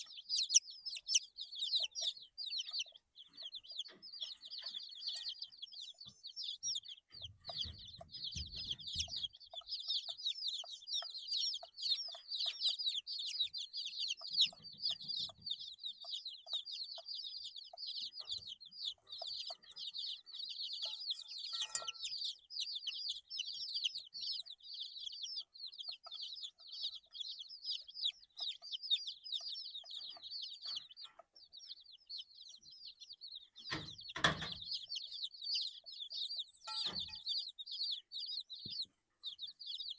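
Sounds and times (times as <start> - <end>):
chicks peeping: 0.0 - 39.9
thump: 33.7 - 34.6.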